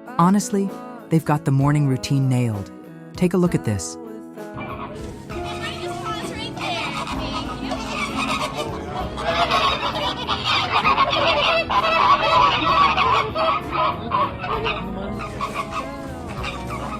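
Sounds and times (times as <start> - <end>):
flamingos honking: 4.6 - 16.9.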